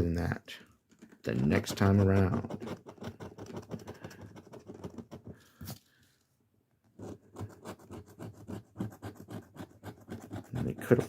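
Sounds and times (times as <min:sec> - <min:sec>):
scratching lottery ticket: 0:01.4 - 0:05.3, 0:07.0 - 0:11.0.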